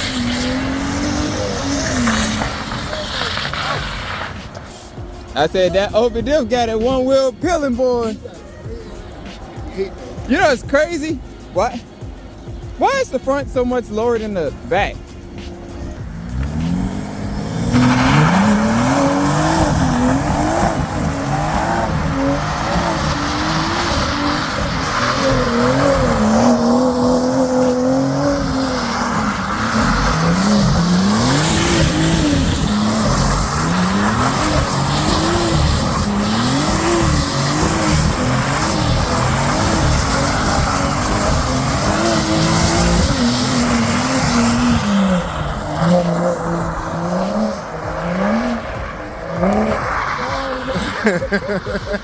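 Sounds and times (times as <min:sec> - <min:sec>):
tyre wheelspin hiss on snow: 0:00.0 - 0:05.4
car engine revving: 0:00.0 - 0:52.0.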